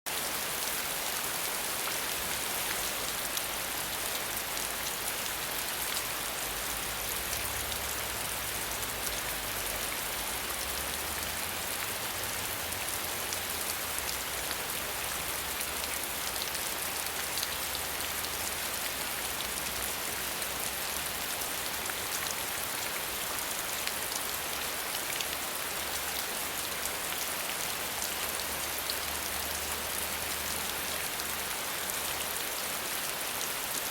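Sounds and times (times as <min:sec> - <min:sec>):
rain falling: 0:00.1 - 0:33.9.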